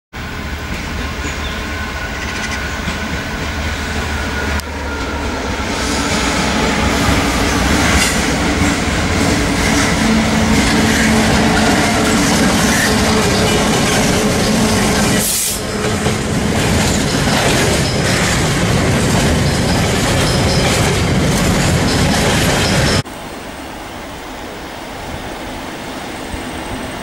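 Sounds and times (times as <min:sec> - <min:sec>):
diesel locomotive engine passing: 0:00.2 - 0:27.0
train wheels clattering over rails: 0:05.3 - 0:23.0.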